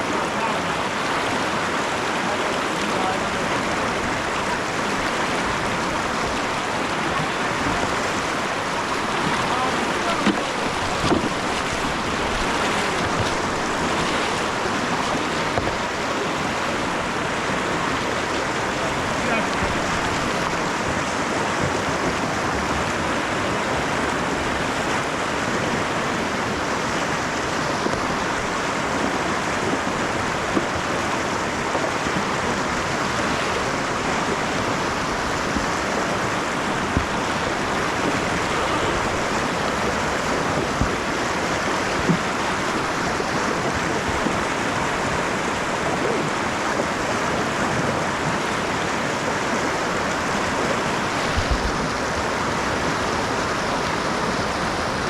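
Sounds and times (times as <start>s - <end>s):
river current hissing: 32.4s - 44.0s.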